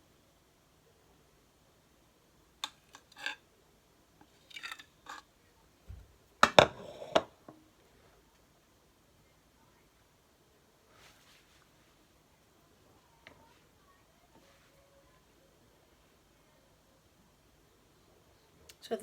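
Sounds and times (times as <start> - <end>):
utensils clicking and scraping dish: 2.6 - 3.4, 4.2 - 5.3.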